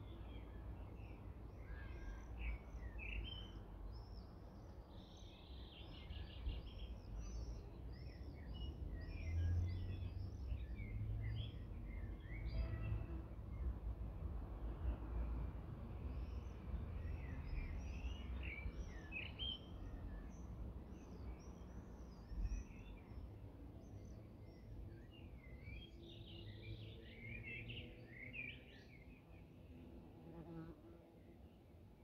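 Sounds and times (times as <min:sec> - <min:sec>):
songbirds chirping and singing: 0:17.0 - 0:29.8.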